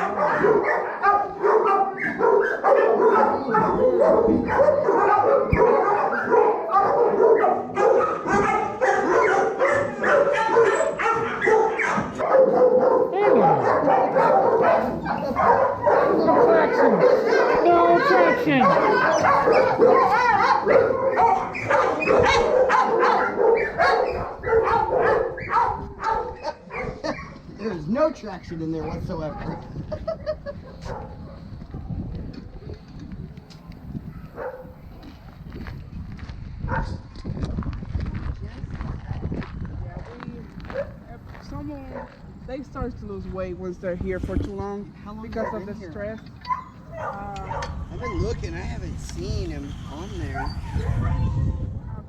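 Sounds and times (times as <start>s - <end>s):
dogs barking: 0.0s - 27.6s, 28.6s - 32.0s, 34.1s - 34.8s, 36.7s - 37.0s, 40.6s - 41.1s, 41.9s - 42.3s, 45.4s - 48.4s, 49.7s - 52.0s.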